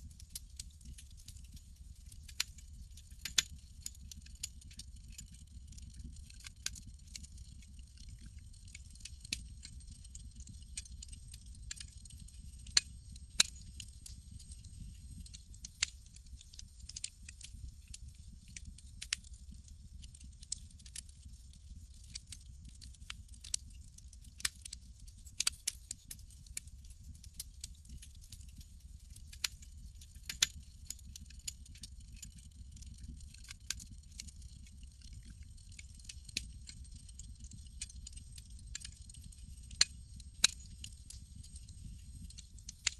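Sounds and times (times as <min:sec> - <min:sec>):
campfire crackling and popping: 0:00.2 - 0:02.5, 0:03.2 - 0:26.7, 0:27.3 - 0:42.9.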